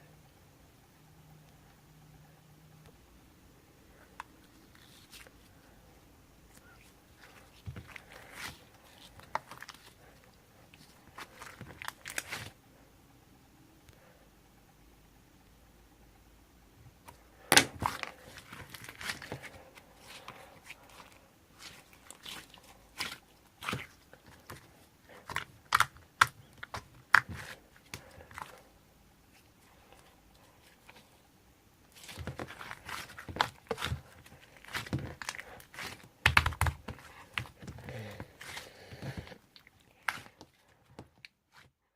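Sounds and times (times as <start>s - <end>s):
hands kneading clay: 3.9s - 12.6s, 17.0s - 41.8s.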